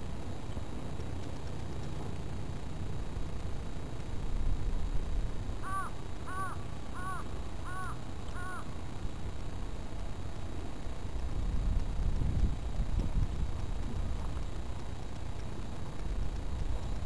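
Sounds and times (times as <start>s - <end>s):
bird calling short arched notes: 5.6s - 8.7s
wind rumbling on microphone: 11.1s - 17.0s.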